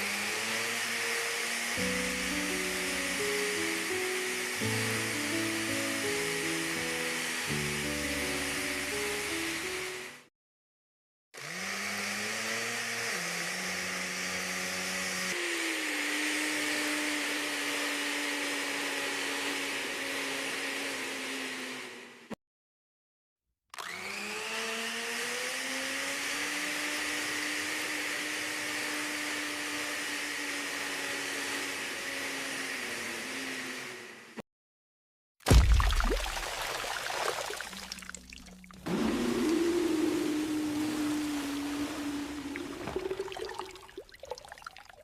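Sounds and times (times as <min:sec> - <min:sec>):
mini blender motor whine: 0:00.0 - 0:10.3, 0:11.4 - 0:22.4, 0:23.8 - 0:34.4, 0:38.8 - 0:45.0.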